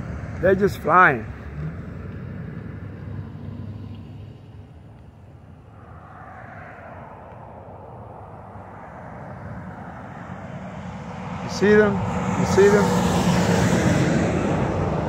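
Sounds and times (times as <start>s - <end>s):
road traffic rushing: 0.0s - 15.0s
vehicle passing: 0.0s - 15.0s.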